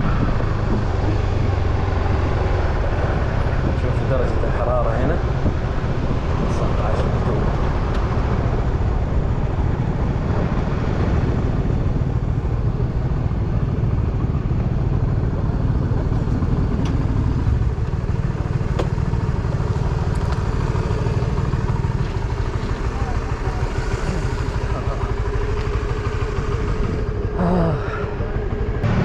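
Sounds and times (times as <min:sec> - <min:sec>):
car engine rumble: 0:00.0 - 0:29.0
road noise inside car: 0:00.0 - 0:29.0.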